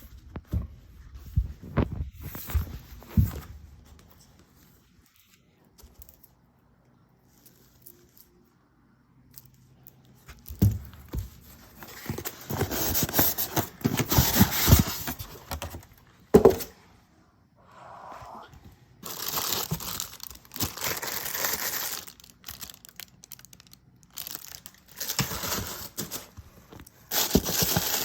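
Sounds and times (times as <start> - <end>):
packaging rustling and crinkling: 10.2 - 16.7, 19.0 - 28.0.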